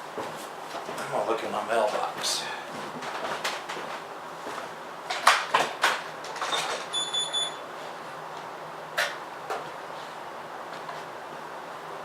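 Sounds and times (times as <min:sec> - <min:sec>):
high electronic beep: 0:06.9 - 0:07.6.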